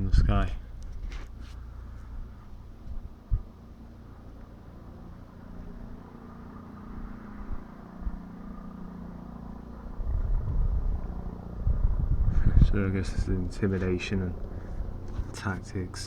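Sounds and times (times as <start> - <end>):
low rumble on microphone: 0.0 - 4.4, 9.5 - 16.0
distant helicopter drone: 0.0 - 16.0.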